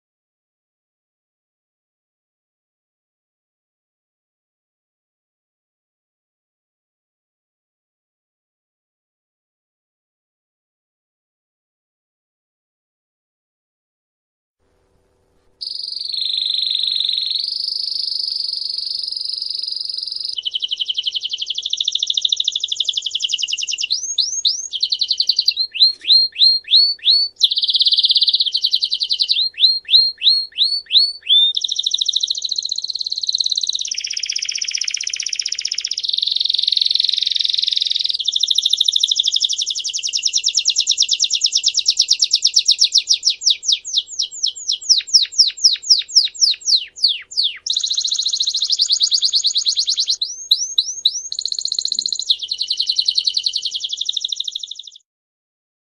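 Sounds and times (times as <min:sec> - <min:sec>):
songbird singing trills: 0:15.6 - 0:55.0.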